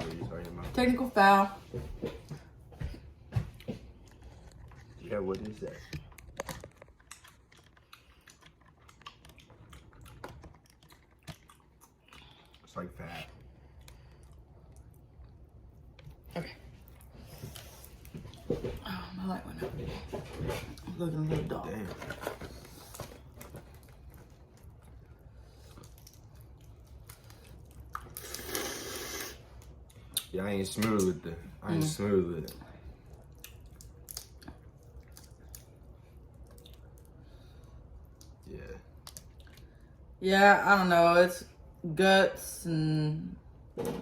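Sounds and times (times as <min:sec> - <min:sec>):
shell cracking and chewing: 0:03.6 - 0:16.3, 0:22.6 - 0:28.7, 0:32.3 - 0:40.0.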